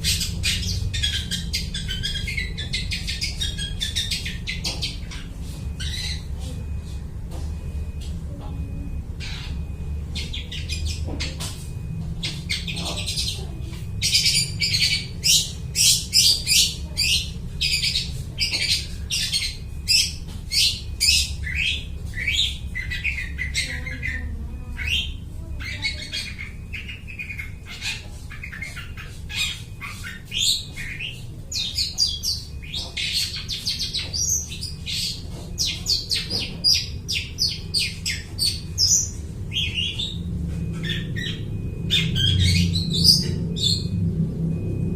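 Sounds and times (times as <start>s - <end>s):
bird singing varied chirps: 0.0s - 44.9s
steady low hum: 0.0s - 44.9s.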